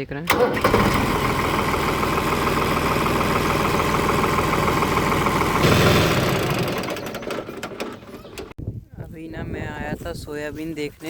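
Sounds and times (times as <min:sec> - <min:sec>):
tractor diesel engine idling: 0:00.3 - 0:08.5.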